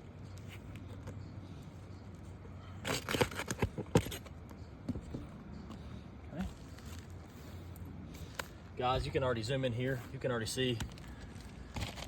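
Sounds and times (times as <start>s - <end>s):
roof shingles scraping and crackling: 2.8s - 4.2s, 11.0s - 12.0s.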